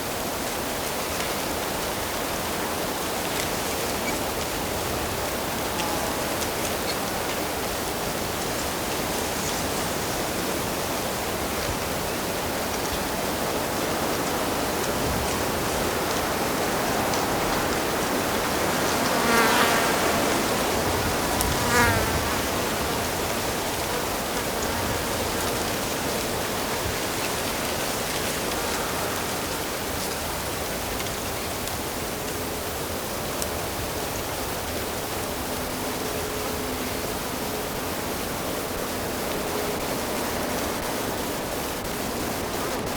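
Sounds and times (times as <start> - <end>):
insect buzzing: 18.7 - 26.2.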